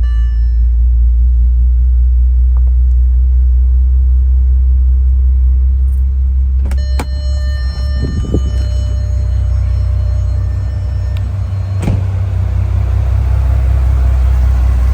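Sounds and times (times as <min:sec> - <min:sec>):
car engine idling: 0:00.0 - 0:14.9
steady high tones: 0:06.7 - 0:14.9.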